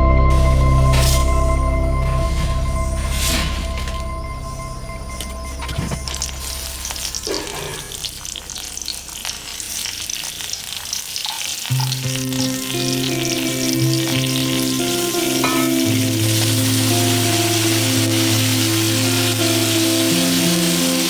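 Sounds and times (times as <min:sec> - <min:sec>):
background music: 0:00.0 - 0:08.4, 0:11.8 - 0:21.0
food sizzling in hot oil: 0:05.5 - 0:21.0.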